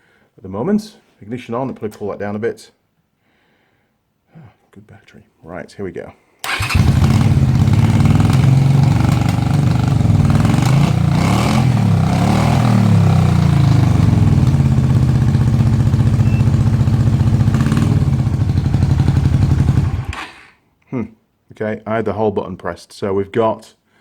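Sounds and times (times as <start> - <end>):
misfiring motorcycle engine: 6.5 - 20.5.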